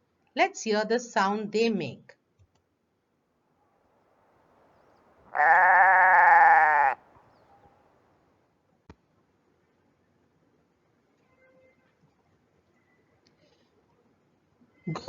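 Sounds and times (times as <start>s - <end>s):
sheep or goat bleat: 5.3s - 7.0s.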